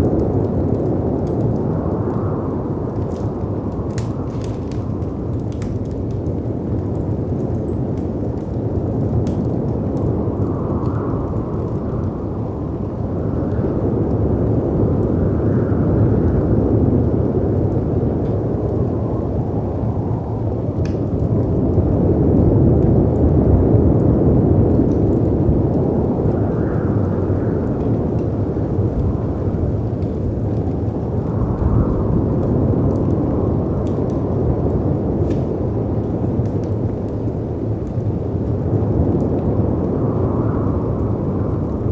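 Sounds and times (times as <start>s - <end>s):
fireplace crackling: 0.6s - 13.6s
wind rushing: 25.5s - 36.0s.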